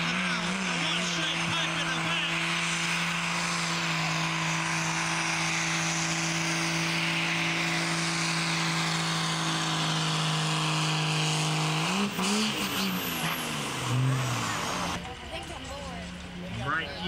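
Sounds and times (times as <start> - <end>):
truck engine at high revs: 0.0 - 17.0.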